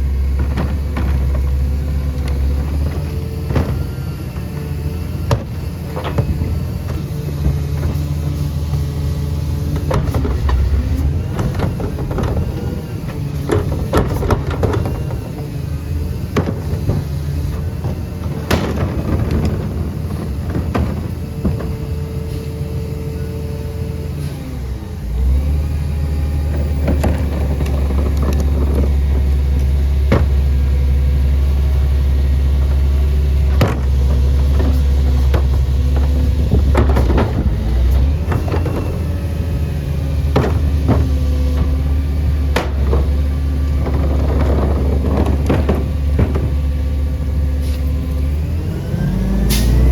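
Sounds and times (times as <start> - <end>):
garbage truck engine running: 0.0 - 49.9
knocks and clanks: 0.2 - 4.6, 5.2 - 8.1, 9.7 - 15.6, 16.2 - 22.4, 26.5 - 48.3.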